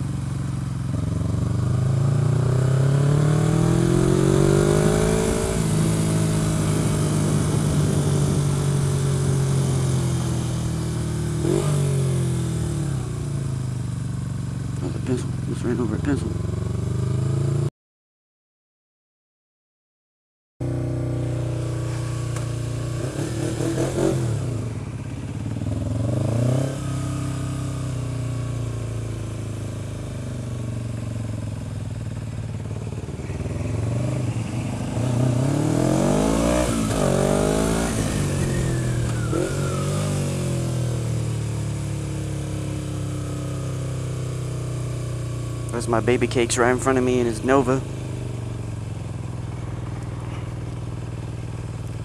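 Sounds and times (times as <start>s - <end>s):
motorcycle engine: 0.0s - 17.7s, 20.6s - 52.0s
wind rushing over microphone: 3.5s - 9.8s.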